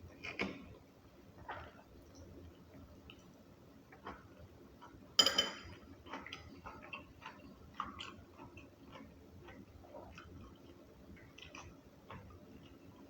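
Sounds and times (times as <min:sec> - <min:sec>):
chewing clicks and smacks: 0:06.0 - 0:13.0.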